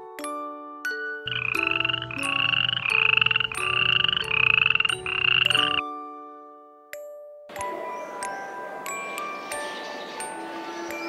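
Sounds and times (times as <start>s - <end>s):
rattling croaking animal call: 1.3s - 5.8s
soft chime tune: 5.5s - 11.0s.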